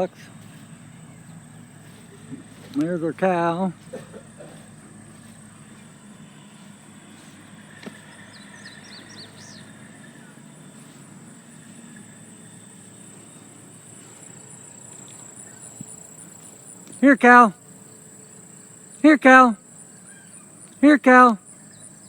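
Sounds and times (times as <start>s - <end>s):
bird chirps: 0.0s - 12.6s, 14.0s - 17.1s, 19.8s - 22.0s
insects droning: 0.0s - 22.0s.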